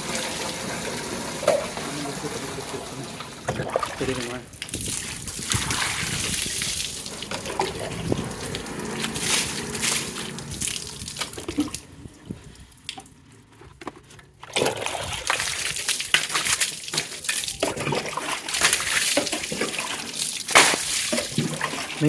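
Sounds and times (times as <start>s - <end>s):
water splashing off motorcycle: 0.0s - 12.0s, 14.6s - 22.0s.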